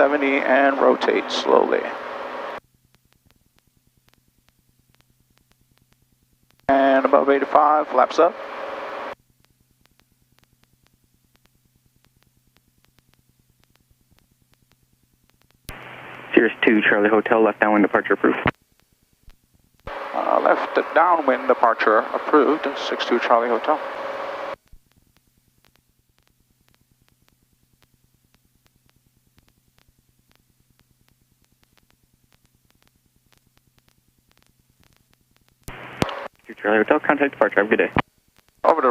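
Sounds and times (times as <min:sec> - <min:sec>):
faint electrical hum: 0:00.0 - 0:38.9
faint rapid ticks: 0:02.6 - 0:06.7, 0:09.1 - 0:16.2, 0:24.5 - 0:38.8.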